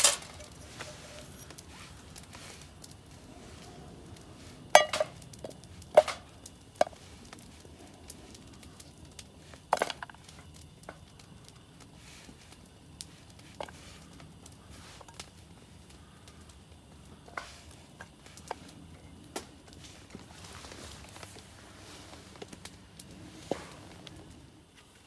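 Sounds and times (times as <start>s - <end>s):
cookware clinking and knocking: 4.8s - 5.2s, 6.0s - 6.2s.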